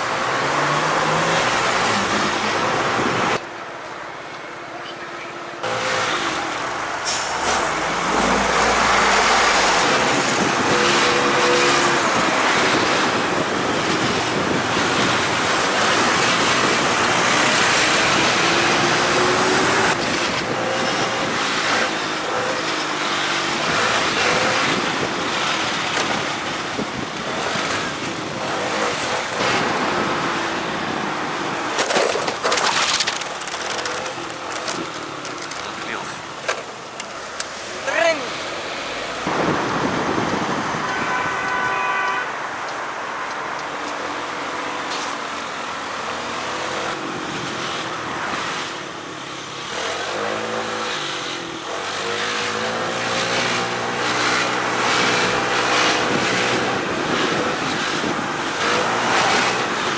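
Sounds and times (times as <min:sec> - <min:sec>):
road noise: 0:00.0 - 0:59.9
wind noise: 0:07.3 - 0:36.4, 0:39.2 - 0:44.2, 0:52.4 - 0:59.9.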